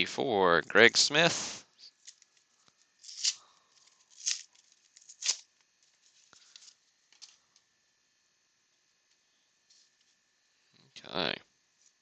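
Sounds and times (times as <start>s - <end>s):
cards rustling and clicking: 2.0s - 7.4s
foil wrapper tearing: 3.0s - 7.3s.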